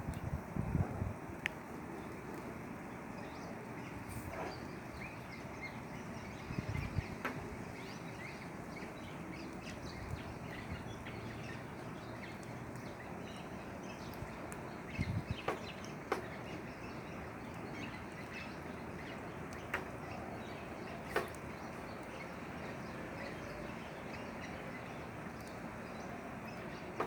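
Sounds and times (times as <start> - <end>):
wind buffeting microphone: 0.0 - 1.5, 2.9 - 11.6, 13.9 - 23.6
small birds chirping: 1.4 - 27.0.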